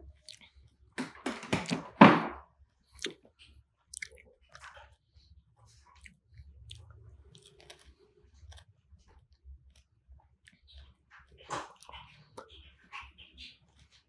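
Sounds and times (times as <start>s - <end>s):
crunchy chewing of fruit: 0.1s - 0.6s, 2.9s - 5.0s, 5.7s - 12.5s.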